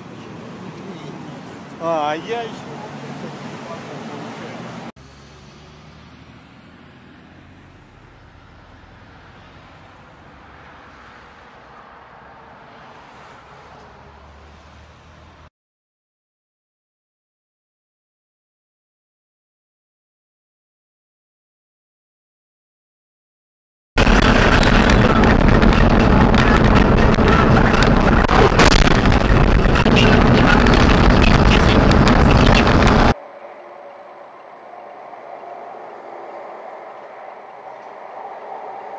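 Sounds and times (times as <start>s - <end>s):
road vehicle running noise: 0.0s - 15.5s, 24.0s - 38.9s.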